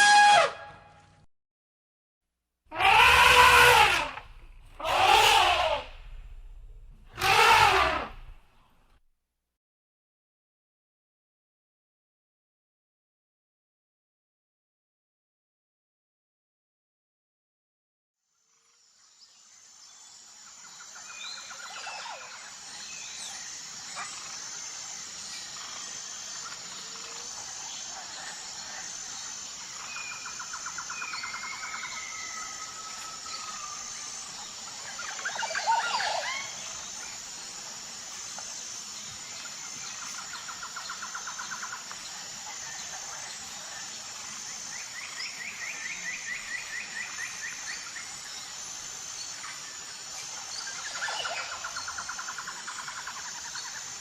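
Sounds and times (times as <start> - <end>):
high-pitched insect chorus: 2.7 - 8.4, 19.2 - 54.0
complex bird call: 2.7 - 8.5.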